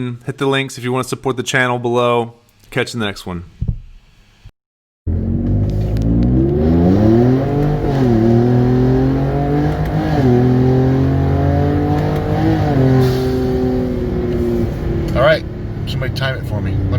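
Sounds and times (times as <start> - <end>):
car engine accelerating hard: 5.1 - 16.9.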